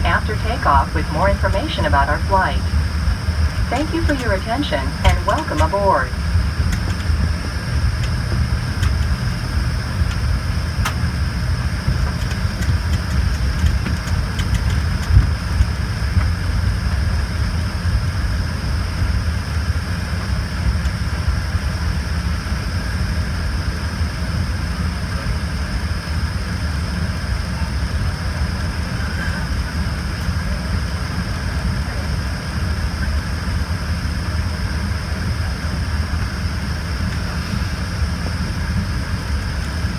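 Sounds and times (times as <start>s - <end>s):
jet engine rumble and whine: 0.0s - 39.9s.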